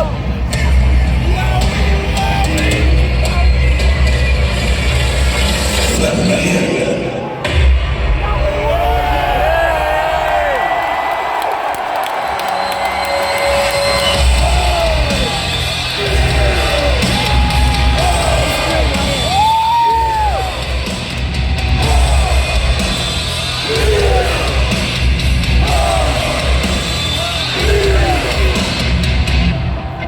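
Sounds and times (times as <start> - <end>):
loud music with pulsing bass: 0.0 - 9.5, 13.8 - 30.0
crowd yelling and whooping: 7.1 - 30.0.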